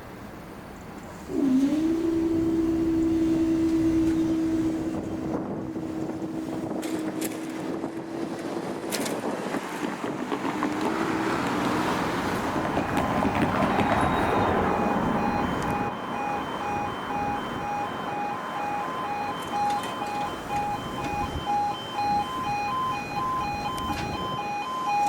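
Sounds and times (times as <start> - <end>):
road vehicle passing: 1.2 - 25.0
level crossing alarm beeping: 12.5 - 25.0.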